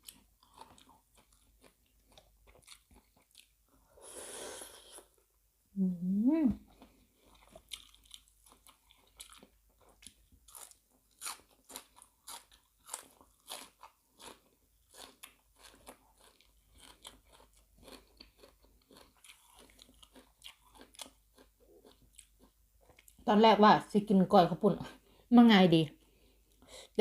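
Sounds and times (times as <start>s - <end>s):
person chewing crunchy food: 0.0s - 4.0s, 6.7s - 23.2s.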